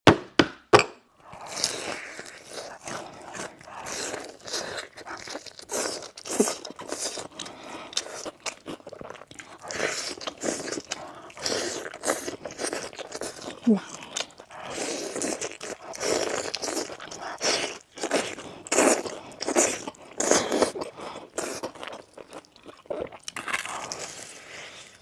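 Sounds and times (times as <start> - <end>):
crackly chewing: 1.2 - 25.0
crunching bites of fried chicken: 8.0 - 24.4.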